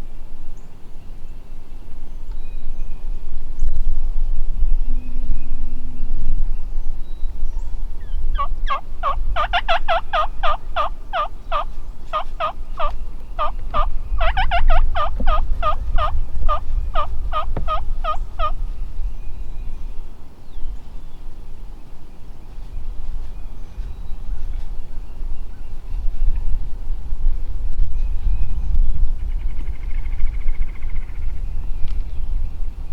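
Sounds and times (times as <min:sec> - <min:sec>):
turkey yelps: 0:08.4 - 0:18.5.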